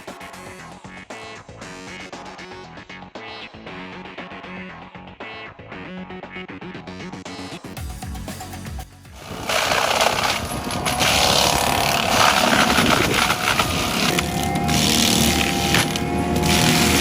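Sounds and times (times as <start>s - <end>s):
cutting and grinding noise: 9.2s - 17.0s
heavy machinery engine: 9.2s - 17.0s.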